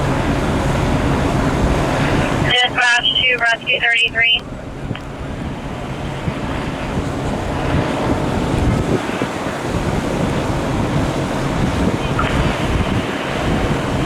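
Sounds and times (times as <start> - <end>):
road traffic rumble: 0.0 - 14.0
wind buffeting microphone: 0.0 - 14.0.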